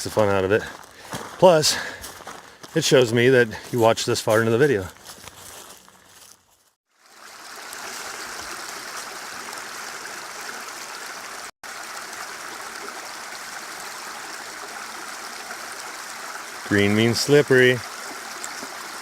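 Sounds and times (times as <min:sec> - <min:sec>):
stream running over rocks: 0:06.9 - 0:19.0.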